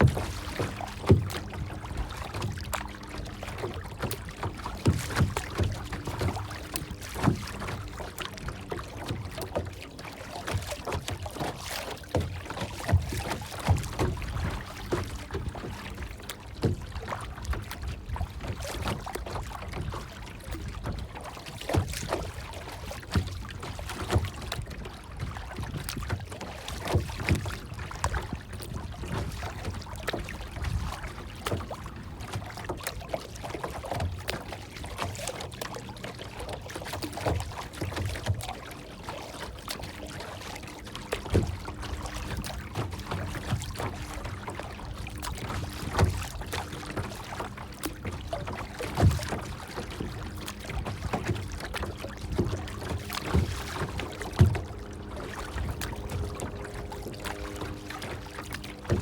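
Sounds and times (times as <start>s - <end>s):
small knocks and low thumps: 0.0s - 2.8s, 41.1s - 59.0s
water lapping and sloshing: 0.0s - 59.0s.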